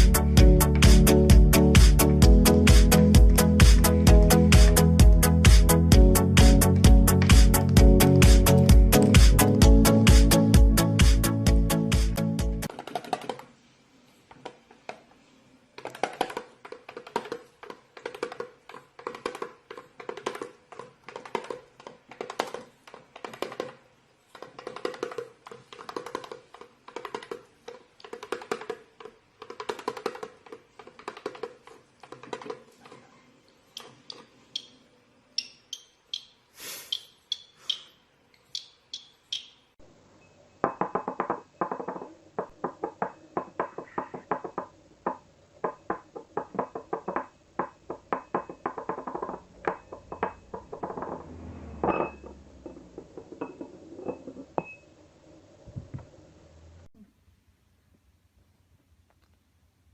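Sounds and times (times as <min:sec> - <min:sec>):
rhythmic wooden tapping: 0:00.0 - 0:13.4, 0:15.8 - 0:33.0, 0:33.7 - 0:39.9, 0:40.6 - 0:51.4
short high-pitched calls: 0:35.4 - 0:39.7.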